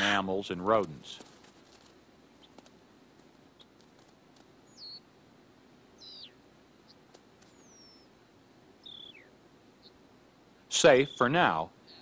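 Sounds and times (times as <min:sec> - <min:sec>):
low background hiss: 0:00.0 - 0:12.0
faint bird chirps: 0:04.6 - 0:05.1, 0:05.9 - 0:08.2, 0:08.8 - 0:10.0, 0:10.9 - 0:12.0.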